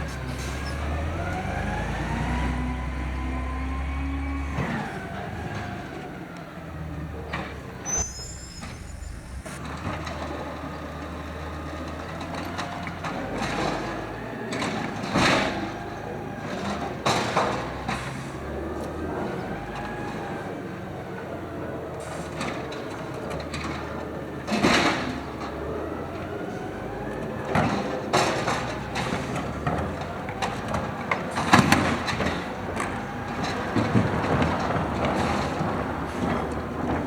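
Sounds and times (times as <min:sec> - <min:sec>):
garbage truck engine running: 0:00.0 - 0:37.0
hydraulic whine: 0:07.4 - 0:12.5.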